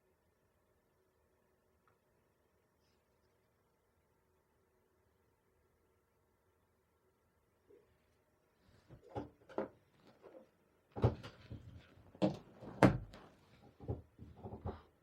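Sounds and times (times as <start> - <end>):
small objects knocking on a table: 11.0 - 14.8.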